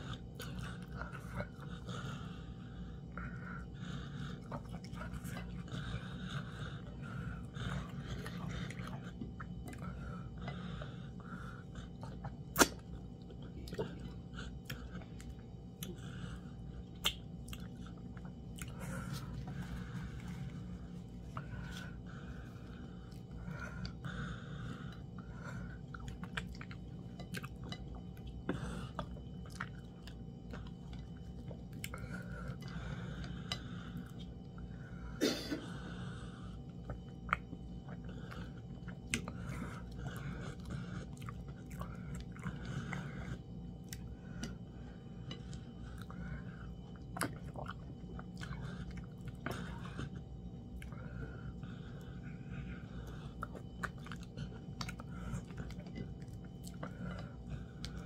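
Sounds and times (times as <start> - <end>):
chewing and wet mouth sounds: 0.0 - 35.0, 35.7 - 58.0
lip smacks: 12.0 - 12.9, 17.0 - 17.8.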